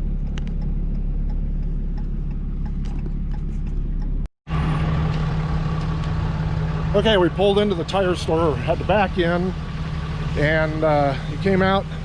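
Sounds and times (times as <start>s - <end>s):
steady engine hum: 0.0s - 12.0s
vehicle engine rumbling: 0.0s - 12.0s
light ticks: 0.3s - 4.2s.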